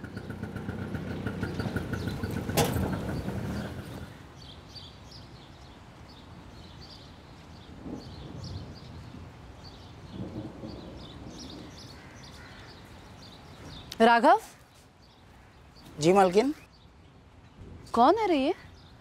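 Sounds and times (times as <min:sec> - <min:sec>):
birds chirping: 0:00.0 - 0:19.0
low outdoor background: 0:00.0 - 0:19.0.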